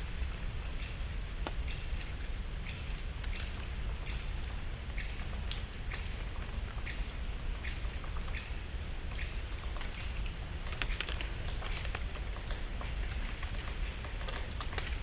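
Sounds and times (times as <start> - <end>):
dry leaves pattering: 9.1 - 15.0.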